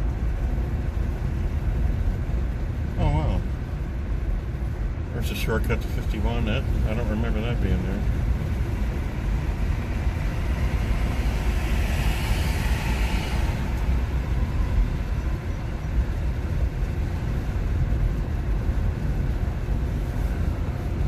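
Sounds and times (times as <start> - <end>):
road and tyre noise: 0.0 - 21.0.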